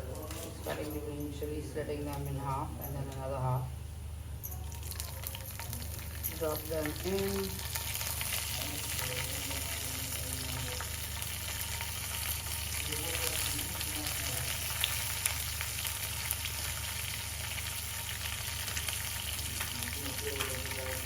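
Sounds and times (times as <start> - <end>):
seeds sizzling in hot oil: 4.6 - 21.0.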